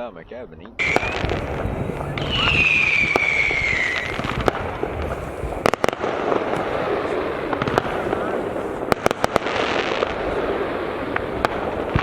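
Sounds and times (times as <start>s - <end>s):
firework whistle falling: 0.8s - 8.9s
firework crackling: 0.8s - 12.0s
firework cracks: 0.8s - 12.0s.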